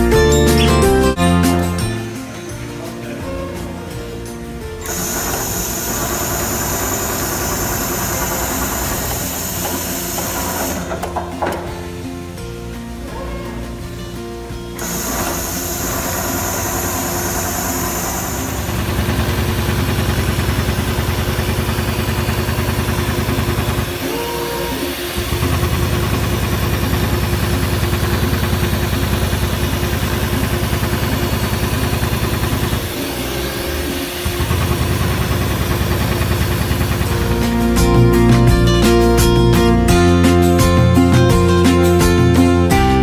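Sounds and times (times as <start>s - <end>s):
industrial sewing machine running: 4.8s - 12.3s, 14.8s - 39.2s.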